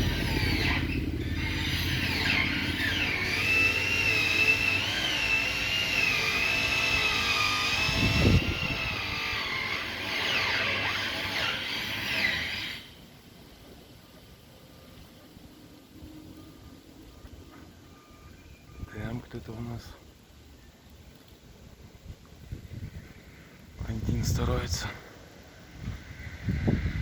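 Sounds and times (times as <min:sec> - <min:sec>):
small engine revving: 0:00.0 - 0:13.0.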